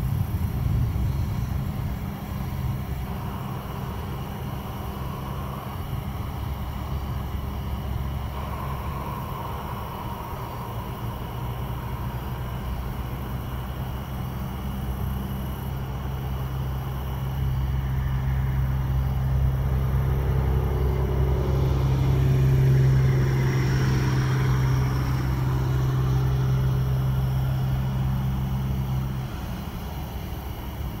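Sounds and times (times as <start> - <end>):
broad rushing noise: 0.0 - 31.0
engine low hum: 0.0 - 31.0.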